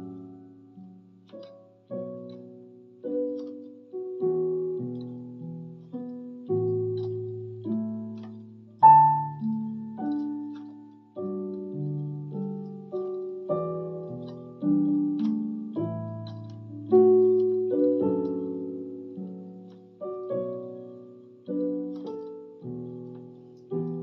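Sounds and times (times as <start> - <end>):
electronic keyboard ballad melody: 0.0 - 24.0.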